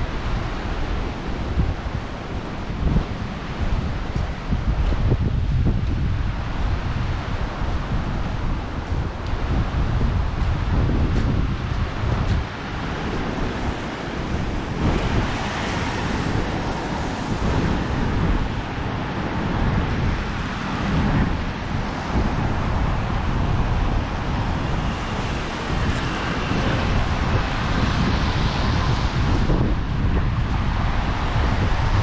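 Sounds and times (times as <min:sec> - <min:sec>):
wind buffeting microphone: 0:00.0 - 0:32.0
surf breaking on beach: 0:06.5 - 0:32.0.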